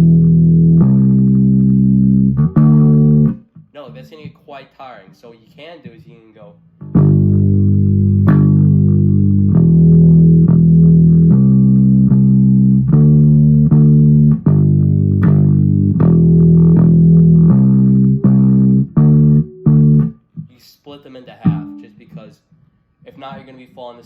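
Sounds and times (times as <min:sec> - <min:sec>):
bass guitar plucked bass line: 0:00.0 - 0:04.3, 0:06.8 - 0:20.4, 0:21.4 - 0:22.1.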